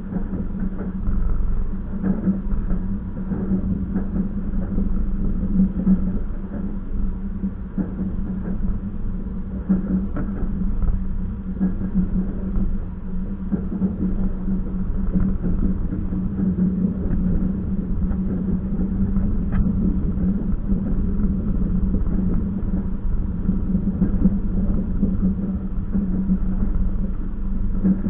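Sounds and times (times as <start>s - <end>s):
train rumble and hum: 0.0s - 28.0s.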